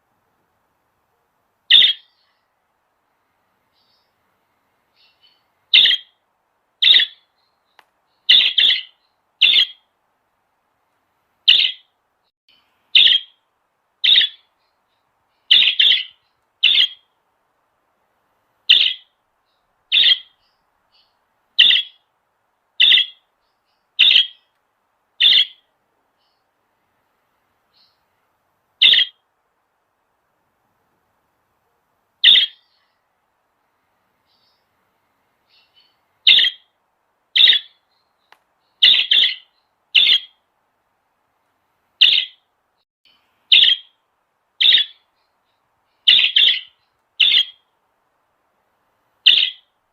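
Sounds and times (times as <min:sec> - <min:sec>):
bird giving sharp calls: 0:01.7 - 0:02.2, 0:05.7 - 0:06.2, 0:06.8 - 0:07.2, 0:08.3 - 0:09.8, 0:11.5 - 0:11.9, 0:13.0 - 0:13.4, 0:14.0 - 0:14.4, 0:15.5 - 0:17.0, 0:18.7 - 0:19.1, 0:19.9 - 0:20.4, 0:21.6 - 0:22.0, 0:22.8 - 0:23.2, 0:24.0 - 0:24.4, 0:25.2 - 0:25.6, 0:28.8 - 0:29.2, 0:32.2 - 0:32.7, 0:36.3 - 0:36.6, 0:37.4 - 0:37.8, 0:38.8 - 0:40.4, 0:43.5 - 0:43.9, 0:44.6 - 0:45.0, 0:46.1 - 0:47.6, 0:49.3 - 0:49.7.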